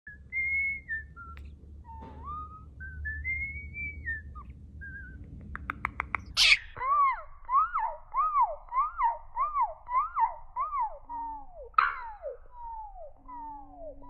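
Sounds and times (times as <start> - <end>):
bird-like whistling: 0.1 - 5.2, 7.6 - 14.0
quick clicks: 5.4 - 6.4.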